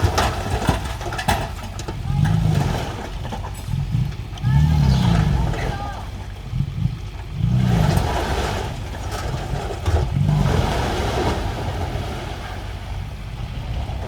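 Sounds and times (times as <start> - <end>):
construction machine engine rumbling: 0.0 - 14.0.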